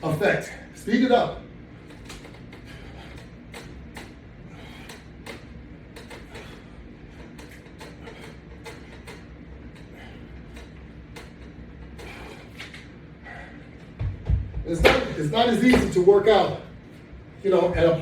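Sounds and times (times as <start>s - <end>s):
low steady hum: 0.0s - 18.0s
exercise equipment clicks and knocks: 1.9s - 4.2s, 4.8s - 12.9s.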